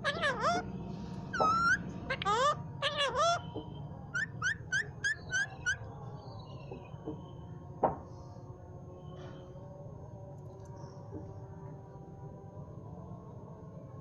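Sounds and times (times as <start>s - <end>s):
parrot whistled chirps: 1.4s - 1.8s.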